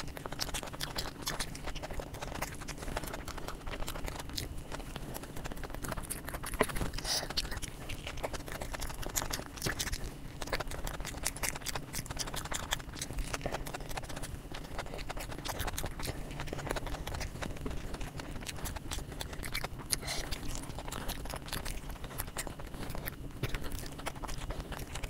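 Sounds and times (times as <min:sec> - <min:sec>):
chewing with wet mouth clicks: 0:00.0 - 0:25.0.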